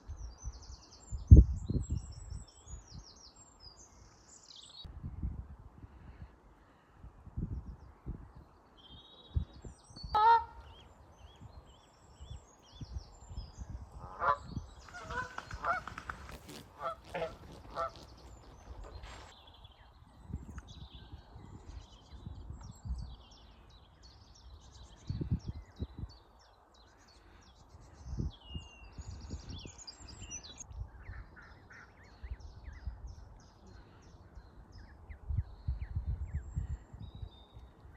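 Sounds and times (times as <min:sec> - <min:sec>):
small birds chirping: 0:07.6 - 0:37.9
geese honking: 0:10.2 - 0:10.7, 0:14.0 - 0:16.0, 0:16.7 - 0:18.3.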